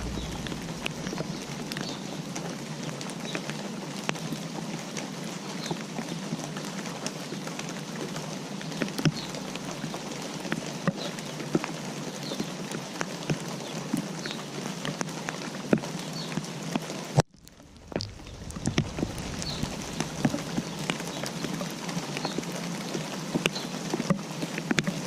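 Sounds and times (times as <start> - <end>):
rain hissing: 0.0 - 2.9, 8.9 - 11.3, 17.3 - 23.3.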